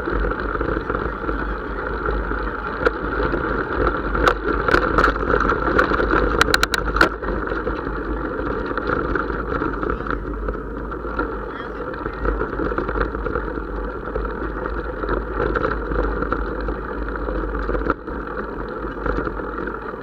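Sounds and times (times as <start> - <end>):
vehicle running: 0.0 - 20.0
sharp clicks: 6.4 - 7.2.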